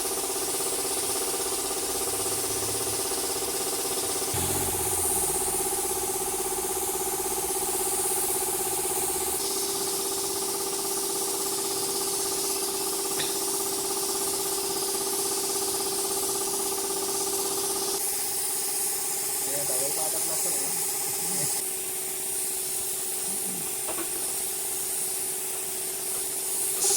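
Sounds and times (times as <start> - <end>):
motor humming: 4.3 - 9.4.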